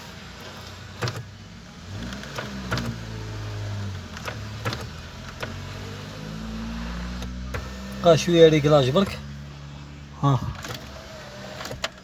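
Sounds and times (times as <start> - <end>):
electric motor humming: 1.8 - 12.0.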